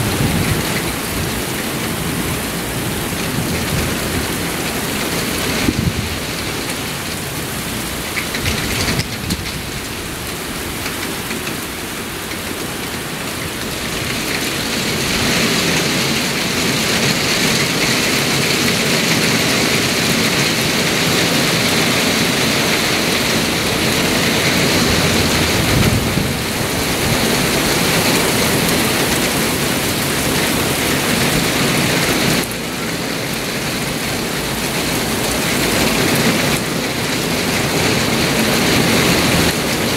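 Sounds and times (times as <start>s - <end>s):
low thunder rumble: 0.0s - 10.3s, 22.2s - 32.4s
heavy rain pouring: 0.0s - 39.9s
wind gusts: 0.0s - 39.9s.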